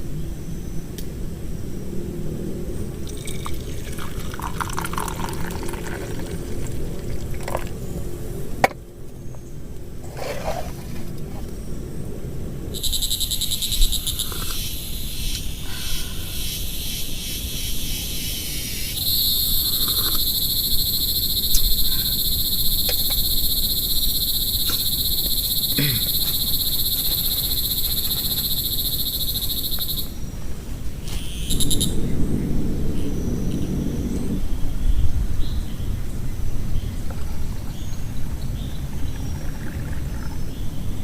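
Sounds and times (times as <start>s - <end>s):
frogs trilling: 3.0s - 8.8s, 12.7s - 30.4s, 31.0s - 34.4s.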